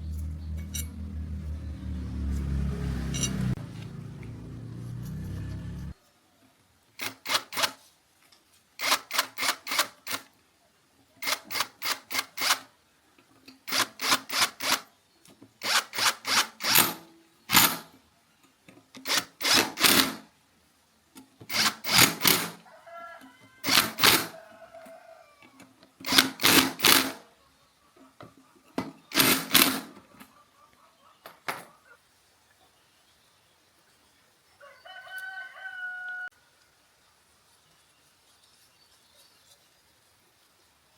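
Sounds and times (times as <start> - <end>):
sharp knocking bursts: 21.5 - 22.6, 23.6 - 24.3, 26.0 - 27.2, 29.1 - 30.0.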